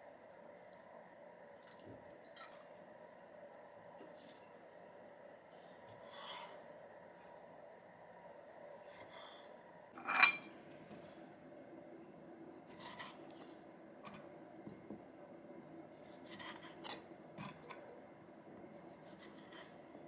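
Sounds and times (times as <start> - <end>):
dishes being handled: 10.0 - 10.6.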